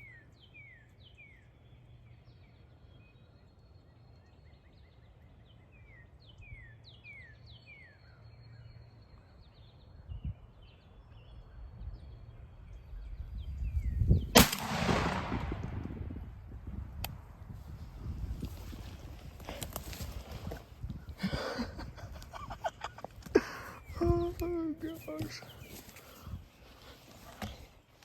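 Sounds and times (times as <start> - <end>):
small birds chirping: 0.0 - 14.6, 17.6 - 28.0
wind rumble: 9.8 - 24.5
shotgun shot echoing: 14.3 - 16.2.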